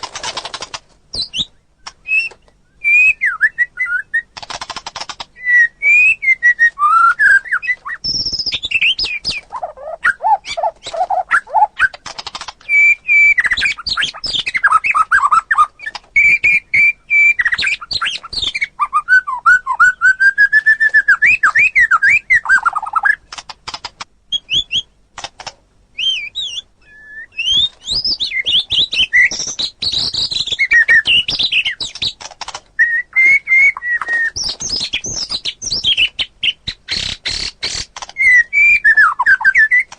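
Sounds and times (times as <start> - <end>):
bird clicking rattles: 0.0 - 1.3, 4.3 - 5.3, 11.8 - 12.8, 23.3 - 24.1, 30.8 - 32.7
bird singing fluting whistles: 1.2 - 4.3, 5.4 - 12.0, 12.6 - 23.2, 26.0 - 32.1, 32.8 - 37.5, 38.2 - 39.9.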